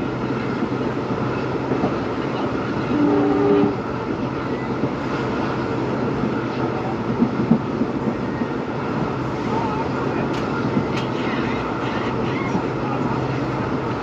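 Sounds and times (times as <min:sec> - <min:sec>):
diesel locomotive engine humming: 0:00.0 - 0:14.0
two-tone horn blast: 0:02.9 - 0:03.8.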